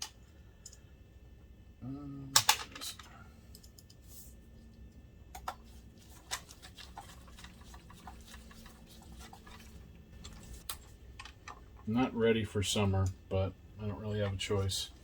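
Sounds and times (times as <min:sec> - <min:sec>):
small parts clicking and tapping: 0:00.0 - 0:00.9, 0:04.6 - 0:11.9.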